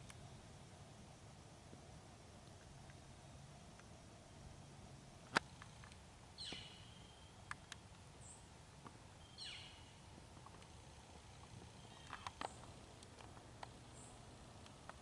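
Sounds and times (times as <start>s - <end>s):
small ticks: 7.4s - 8.0s, 10.2s - 15.0s.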